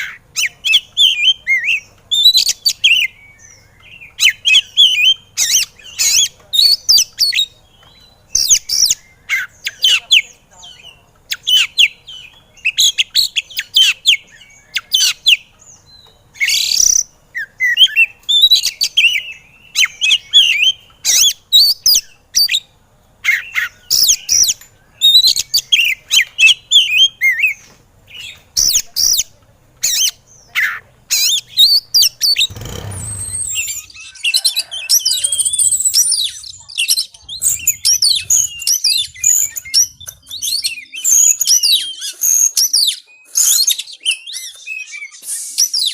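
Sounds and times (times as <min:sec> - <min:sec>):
bird fast warbling song: 0:00.0 - 0:45.9
bird sharp high calls: 0:00.0 - 0:45.9
low rumble: 0:37.1 - 0:40.1.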